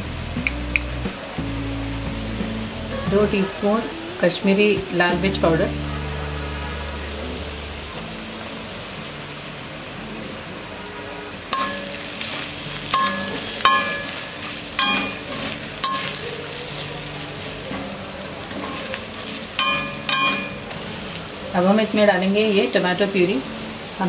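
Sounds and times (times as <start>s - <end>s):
food sizzling in oil: 0.0s - 24.0s
spatula stirring and scraping: 11.6s - 16.9s
spatula knocking on pan: 12.9s - 14.2s, 14.8s - 16.2s, 19.6s - 20.6s.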